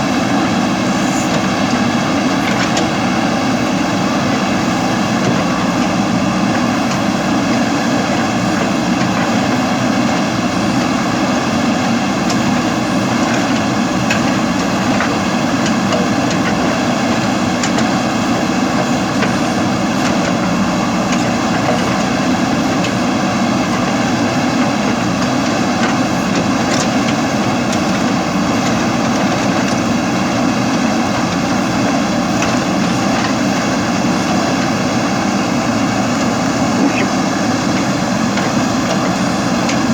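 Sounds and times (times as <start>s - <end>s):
drone propellers whining: 34.8s - 39.3s.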